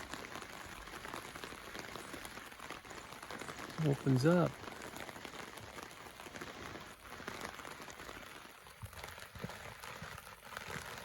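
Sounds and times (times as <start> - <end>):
river flowing: 0.0 - 11.0.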